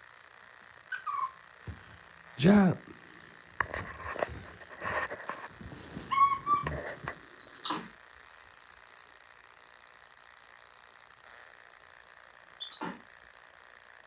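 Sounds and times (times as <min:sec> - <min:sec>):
monkey squeaky calls: 0:00.9 - 0:01.4.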